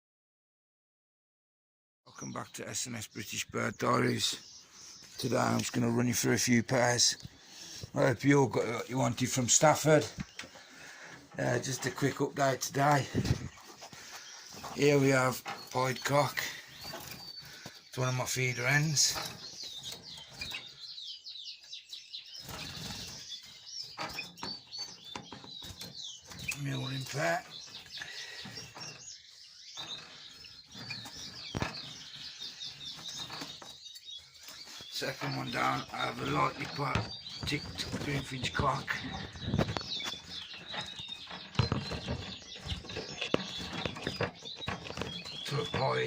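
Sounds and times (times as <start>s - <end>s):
small birds chirping: 2.1s - 46.0s
wings fluttering: 36.0s - 45.4s.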